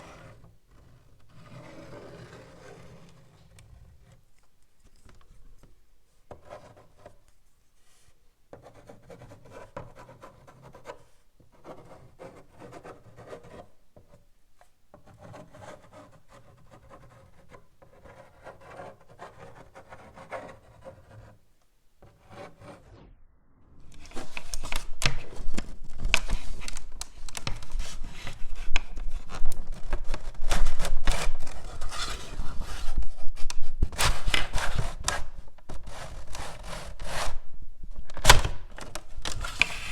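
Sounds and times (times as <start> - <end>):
chalk scratching on blackboard: 6.3 - 13.8, 35.8 - 37.4.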